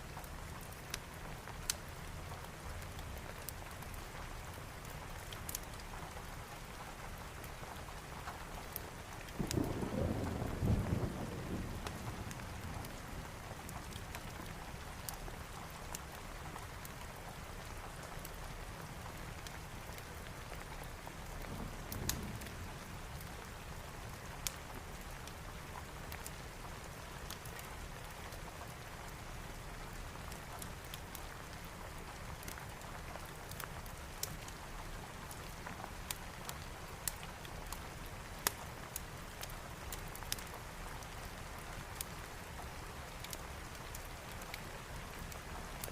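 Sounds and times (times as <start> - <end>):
heavy rain: 0.0 - 45.9
wood fire crackling and popping: 0.2 - 1.9, 4.8 - 5.9, 11.8 - 17.2, 24.1 - 25.4, 26.1 - 28.4, 30.3 - 34.6, 35.2 - 45.9.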